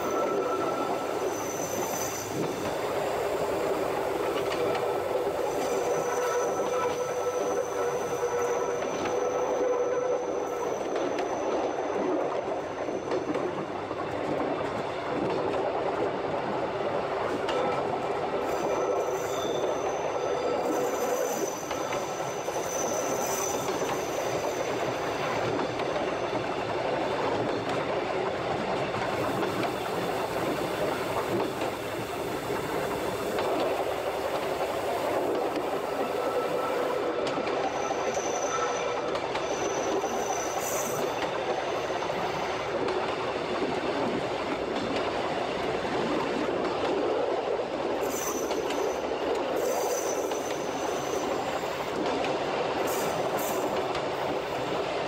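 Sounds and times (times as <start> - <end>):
high wheel squeal: 0.0 - 3.2, 5.4 - 11.8, 18.5 - 26.3, 35.8 - 42.5, 48.0 - 51.8
train wheels rumbling on rails: 0.0 - 55.0.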